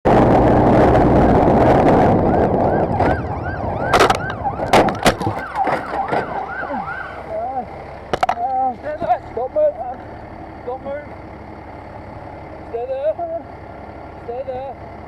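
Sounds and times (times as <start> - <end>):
siren yelping: 1.8 - 7.7
sharp knocks: 3.9 - 6.4.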